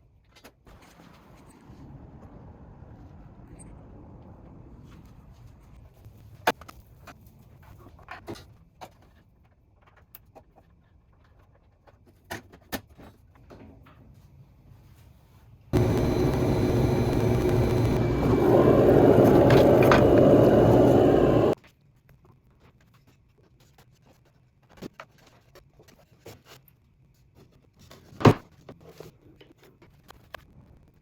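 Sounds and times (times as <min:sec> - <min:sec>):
workshop machine running: 0:15.8 - 0:21.6.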